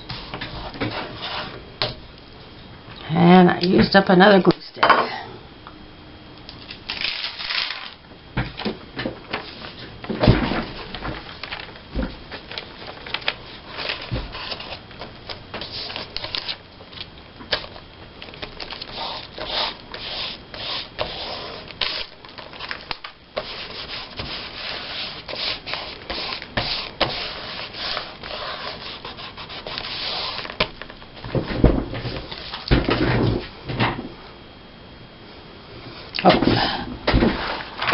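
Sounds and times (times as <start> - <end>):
paper being handled: 12.4 - 14.8, 15.6 - 30.6.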